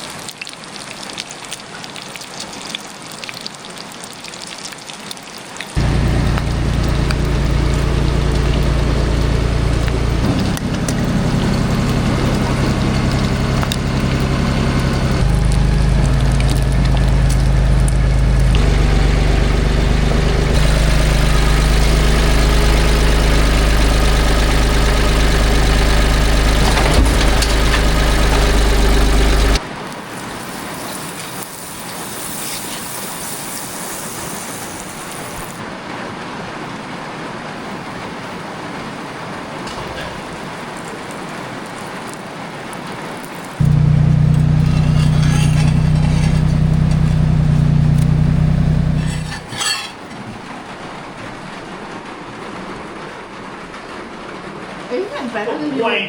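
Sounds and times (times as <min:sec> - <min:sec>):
four-wheeler engine running: 0:05.8 - 0:29.6, 0:43.6 - 0:49.5.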